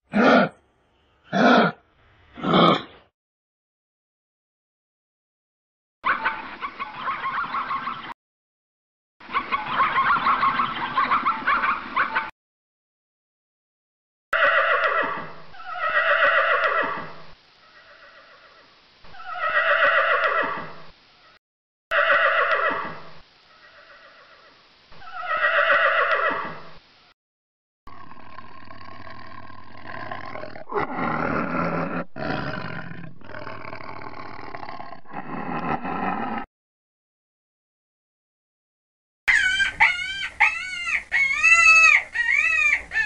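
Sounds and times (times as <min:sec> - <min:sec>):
animal crying: 0:00.1 - 0:00.6, 0:01.3 - 0:01.8, 0:14.4 - 0:17.0, 0:17.6 - 0:20.6, 0:23.5 - 0:26.5, 0:39.3 - 0:43.0
steady animal sound: 0:00.1 - 0:03.1, 0:14.4 - 0:26.8, 0:27.9 - 0:36.5, 0:39.3 - 0:43.0.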